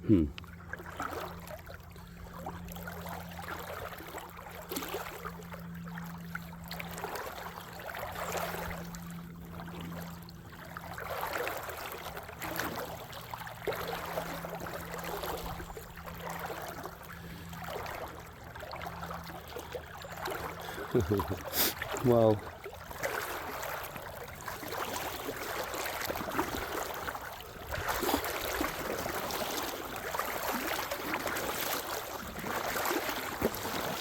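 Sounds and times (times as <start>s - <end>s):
creek water running over rocks: 17.5s - 34.0s.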